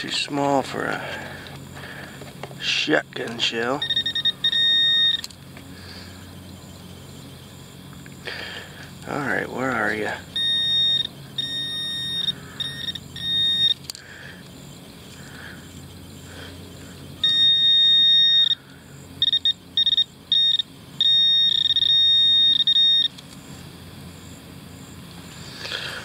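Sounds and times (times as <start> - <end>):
metal detector beeping: 2.6 - 5.5, 9.1 - 14.0, 17.2 - 23.6.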